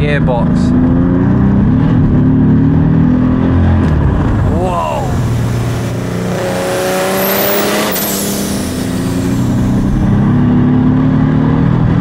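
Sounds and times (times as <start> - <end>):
diesel engine accelerating: 0.1 - 12.0
turbo whistle: 7.0 - 10.0.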